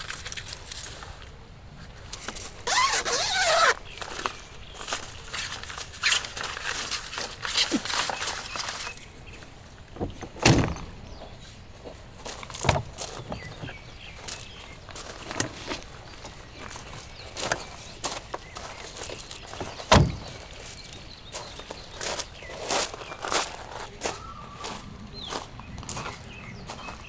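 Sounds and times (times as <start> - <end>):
dull thuds: 9.9 - 13.8, 19.6 - 20.4.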